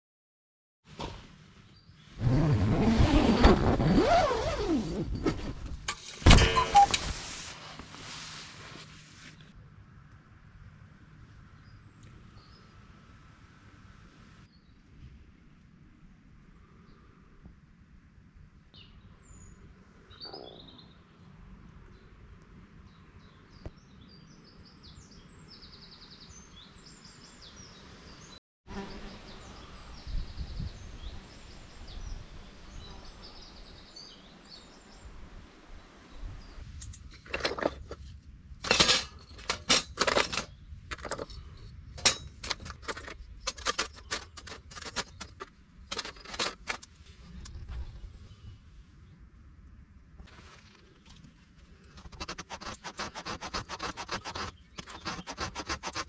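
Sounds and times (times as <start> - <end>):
sharp knocks and clatters: 5.3 - 7.4, 37.1 - 46.9
small birds chirping: 53.6 - 55.8.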